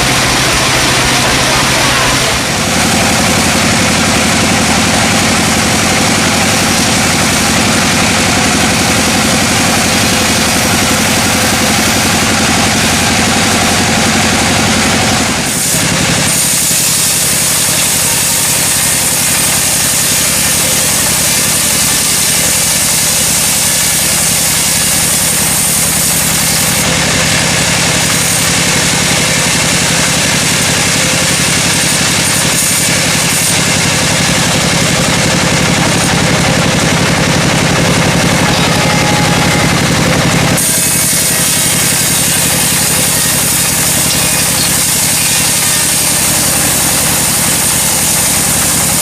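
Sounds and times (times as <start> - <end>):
sawmill engine drone: 0.0 - 49.0.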